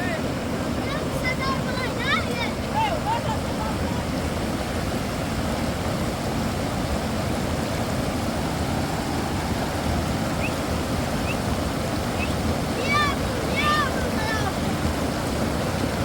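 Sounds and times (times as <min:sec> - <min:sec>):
heavy rain: 0:00.0 - 0:16.0
wind: 0:00.0 - 0:16.0.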